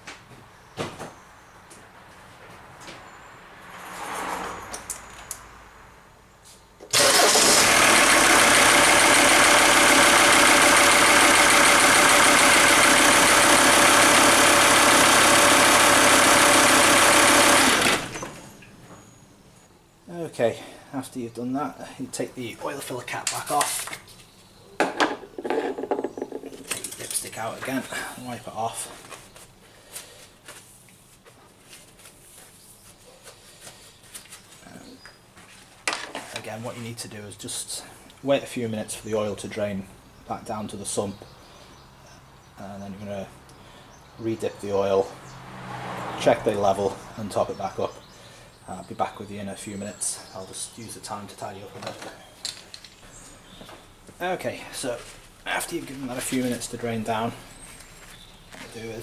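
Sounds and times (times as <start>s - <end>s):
diesel car engine starting and idling: 6.9s - 18.5s.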